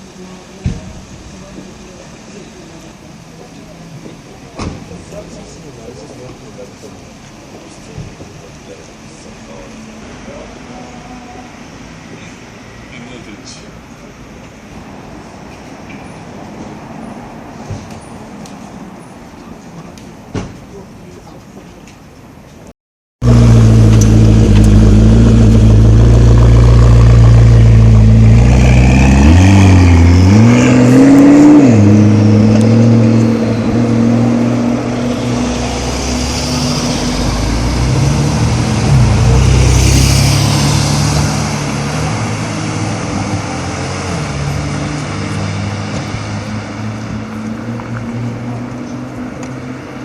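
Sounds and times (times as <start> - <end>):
engine revving blips: 23.2 - 34.2
car engine running loud: 23.2 - 49.7.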